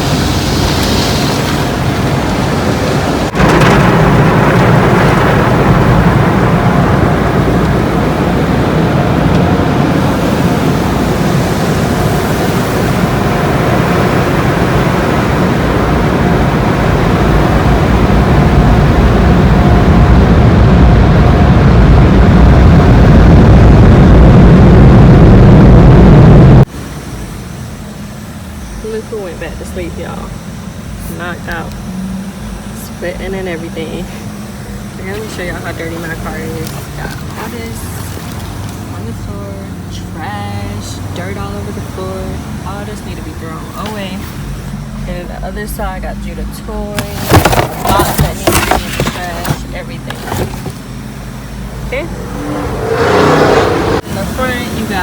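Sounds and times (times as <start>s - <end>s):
water spraying on car body: 0.0s - 5.5s
car wash rushing: 0.0s - 55.0s.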